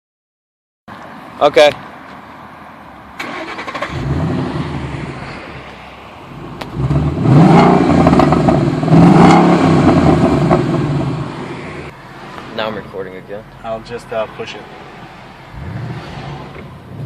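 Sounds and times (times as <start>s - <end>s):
car engine starting and revving: 3.2s - 12.0s, 15.2s - 17.0s.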